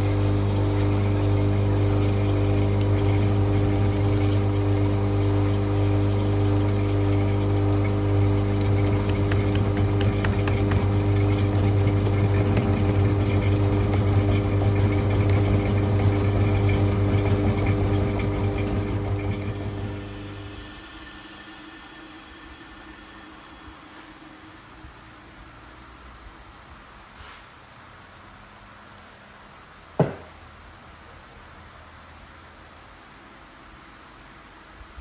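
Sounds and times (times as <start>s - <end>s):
machine motor humming: 0.0s - 24.5s.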